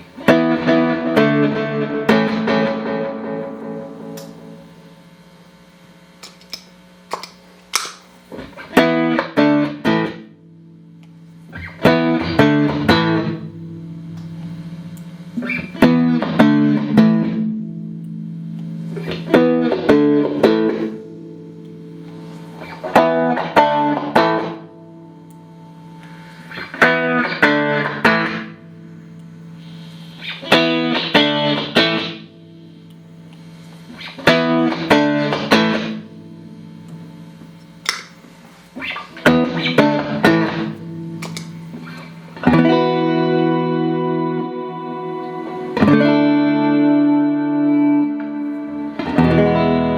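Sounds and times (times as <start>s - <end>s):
clean electric guitar chords: 0.0s - 7.1s, 8.3s - 49.9s.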